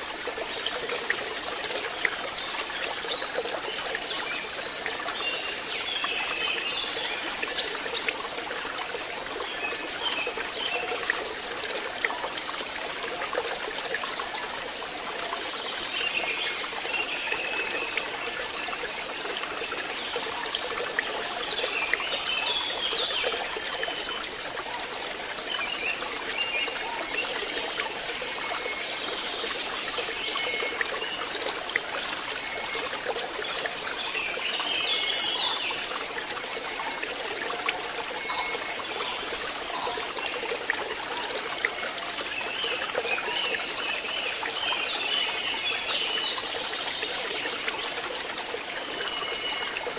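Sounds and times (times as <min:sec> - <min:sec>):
water trickling into pond: 0:00.0 - 0:49.9.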